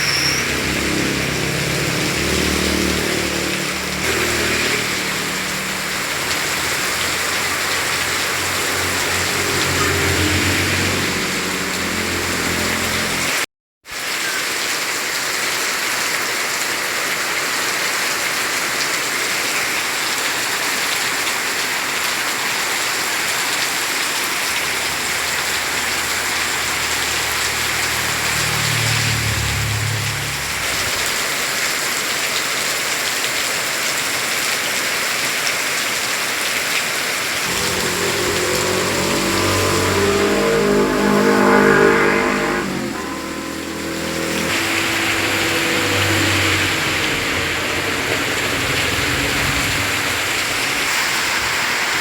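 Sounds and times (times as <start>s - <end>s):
heavy rain pouring: 0.0s - 52.0s
low hum: 37.4s - 50.9s.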